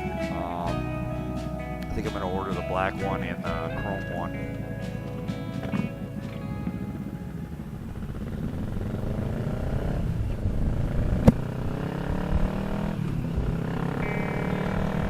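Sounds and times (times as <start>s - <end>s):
motorcycle engine accelerating: 0.0s - 15.0s
wind rumble on microphone: 5.6s - 13.7s.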